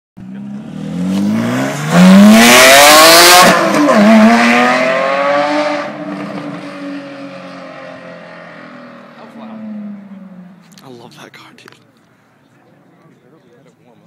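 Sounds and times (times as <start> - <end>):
sports car accelerating past: 0.2 - 10.6.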